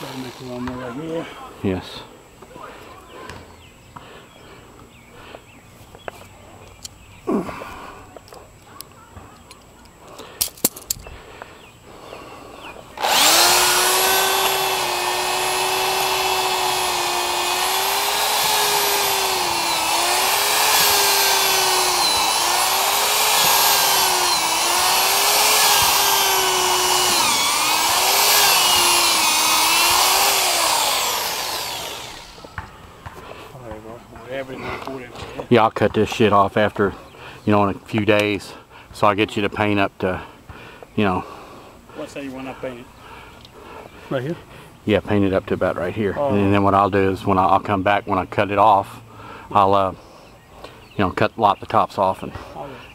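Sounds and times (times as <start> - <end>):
power drill boring a hole: 0.0 - 0.8, 13.0 - 32.6.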